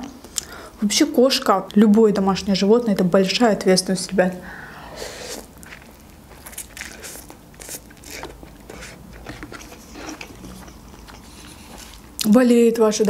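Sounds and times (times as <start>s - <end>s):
noodles slurped: 4.9s - 12.3s
chewing with wet mouth clicks: 5.6s - 12.4s.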